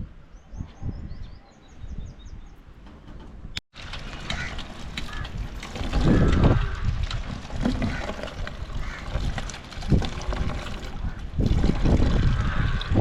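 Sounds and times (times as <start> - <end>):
rumbling clattering noise: 2.7 - 13.0.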